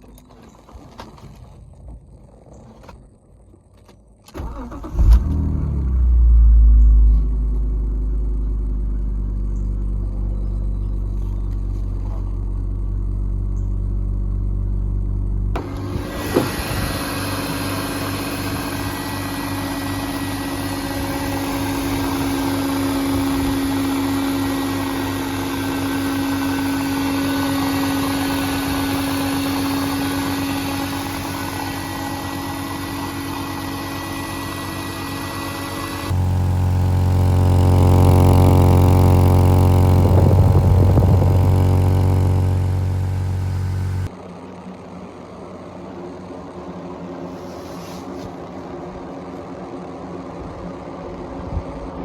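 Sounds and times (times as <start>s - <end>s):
car engine revving and idling: 4.5s - 44.1s
steady hum: 6.3s - 52.0s
hiss: 15.6s - 36.0s.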